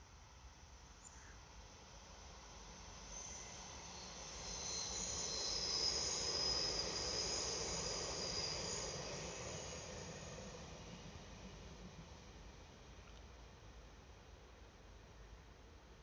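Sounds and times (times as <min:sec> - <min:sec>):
passing train rumble: 0:02.0 - 0:14.3.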